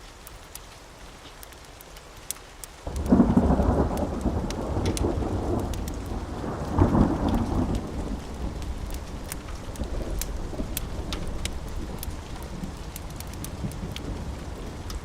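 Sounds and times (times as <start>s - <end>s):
steady rain: 0.0s - 15.0s
sharp ticks: 1.4s - 6.0s, 8.5s - 14.2s
thunder rumbling: 2.9s - 15.0s.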